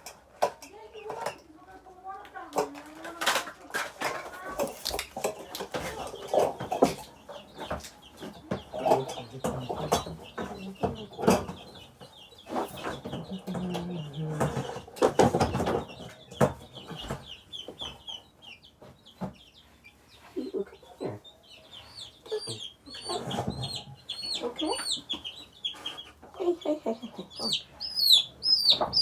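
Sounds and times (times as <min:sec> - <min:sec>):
baby chicks peeping: 0:00.0 - 0:29.0
knocks and clatter of handling: 0:02.5 - 0:17.3.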